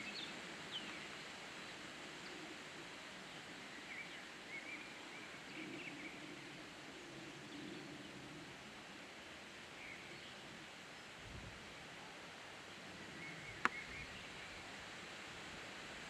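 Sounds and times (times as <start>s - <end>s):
steady outdoor hiss: 0.0s - 16.0s
faint bird chirps: 13.1s - 14.6s.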